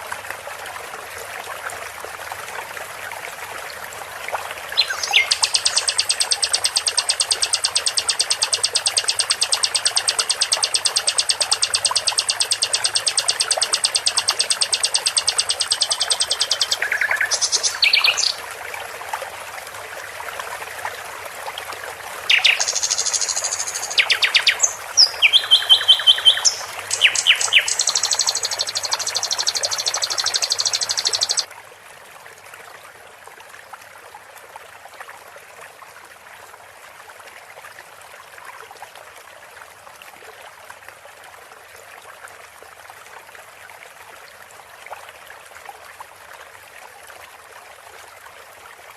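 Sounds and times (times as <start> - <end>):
flowing water: 0.0 - 48.9
songbird chirps and trills: 4.8 - 18.4, 22.3 - 31.5.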